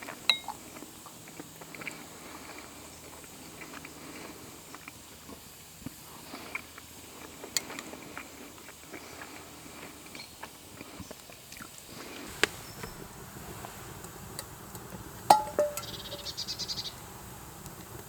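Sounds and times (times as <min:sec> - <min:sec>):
faint outdoor background: 0:00.0 - 0:18.0
campfire crackling: 0:11.4 - 0:18.0.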